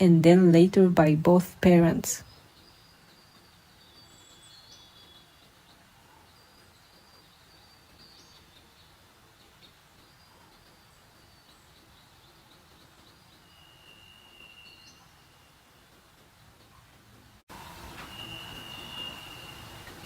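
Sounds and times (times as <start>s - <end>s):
whistled bird note: 13.4s - 15.5s, 17.6s - 20.0s.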